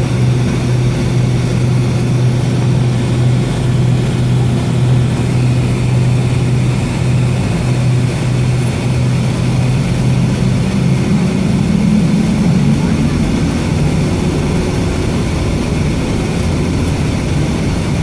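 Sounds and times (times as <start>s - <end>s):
aircraft cabin engine hum: 0.0s - 18.0s
even rushing noise: 0.2s - 18.0s.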